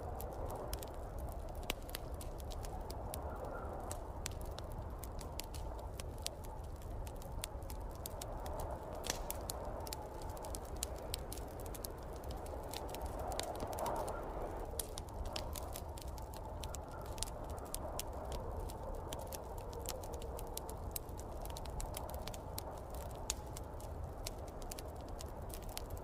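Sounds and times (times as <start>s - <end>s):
fire crackling and popping: 0.0s - 26.0s
low fire rumble: 0.0s - 26.0s.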